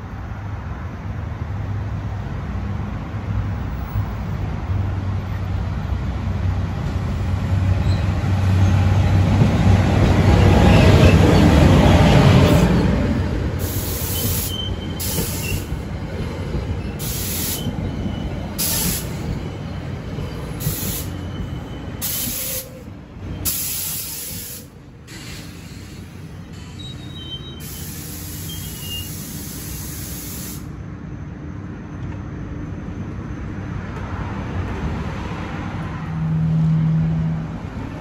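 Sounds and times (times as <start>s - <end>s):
train rumbling past: 0.0s - 38.0s
hiss: 13.6s - 15.7s, 17.0s - 17.7s, 18.6s - 19.2s, 20.6s - 21.2s, 22.0s - 22.8s, 23.4s - 26.2s, 27.6s - 30.8s
high-pitched wheel squeal: 13.6s - 15.8s, 20.2s - 24.4s, 26.6s - 29.3s.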